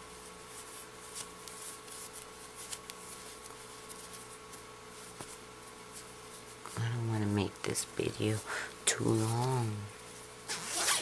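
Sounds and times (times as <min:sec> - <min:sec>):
low electrical hum: 0:00.0 - 0:11.0
fabric rustling: 0:00.1 - 0:06.9, 0:09.0 - 0:11.0.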